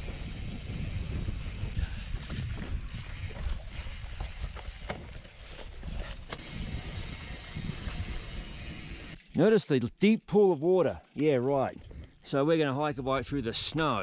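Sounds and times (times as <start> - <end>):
wind rumbling on microphone: 0.0 - 9.2
bike rolling over rough ground: 0.0 - 14.0
bike clicks and knocks: 2.1 - 9.5.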